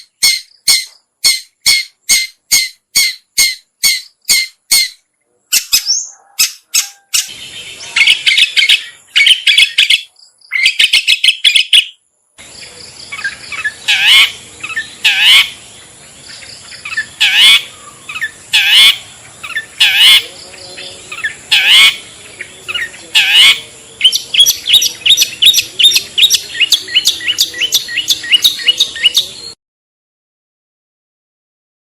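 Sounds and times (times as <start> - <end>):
shrike calls: 16.8 - 29.6.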